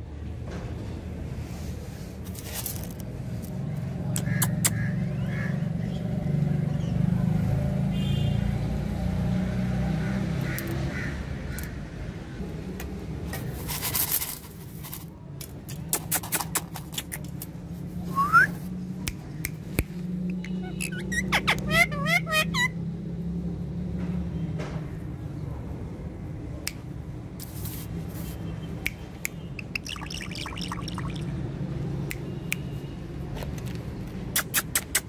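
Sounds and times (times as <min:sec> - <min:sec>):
parrot calls and clicks: 0:04.1 - 0:04.9, 0:10.4 - 0:10.8, 0:11.5 - 0:11.8, 0:15.5 - 0:17.6, 0:19.0 - 0:22.7, 0:28.8 - 0:31.2, 0:33.5 - 0:35.0.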